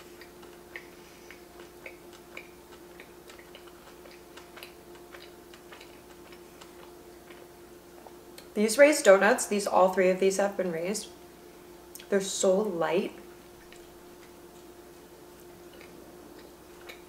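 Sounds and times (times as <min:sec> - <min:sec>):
chewing mouth clicks: 0:00.0 - 0:08.5, 0:11.9 - 0:12.1, 0:13.6 - 0:14.7, 0:15.3 - 0:17.0.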